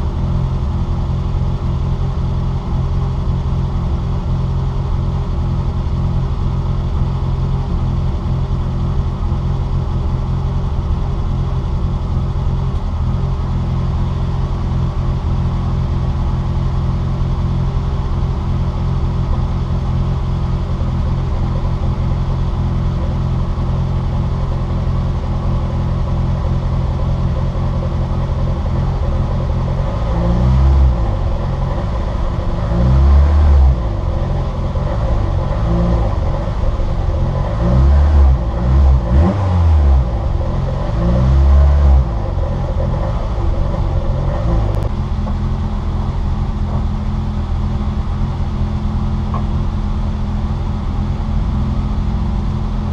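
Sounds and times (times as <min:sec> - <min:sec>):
race car engine high revving: 0:21.5 - 0:46.6.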